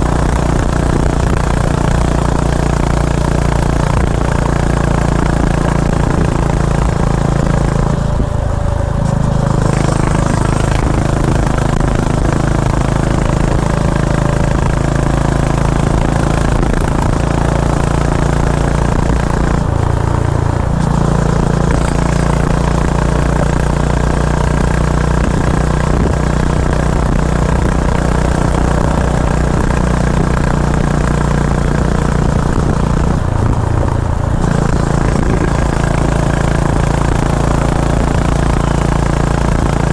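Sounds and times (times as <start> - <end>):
motorcycle engine at speed: 0.0 - 39.9.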